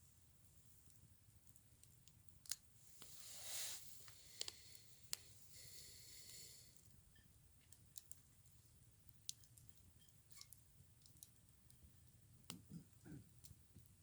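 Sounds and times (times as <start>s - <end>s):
soft rustle: 2.8s - 5.7s
faint sharp clicks: 4.0s - 5.3s.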